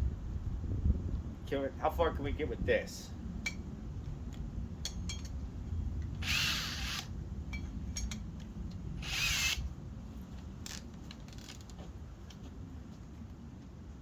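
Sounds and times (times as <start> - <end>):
hammer drill whining: 6.2 - 7.1, 9.0 - 9.6.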